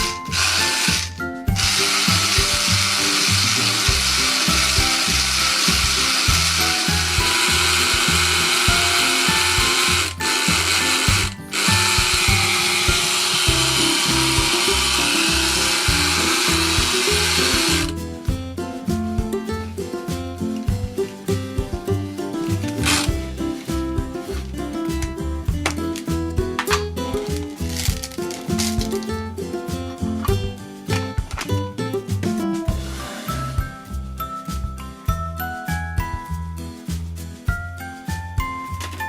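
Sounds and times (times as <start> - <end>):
toy motor whirring: 0.0 - 18.0, 22.8 - 23.1
background music with steady beat: 0.0 - 39.0.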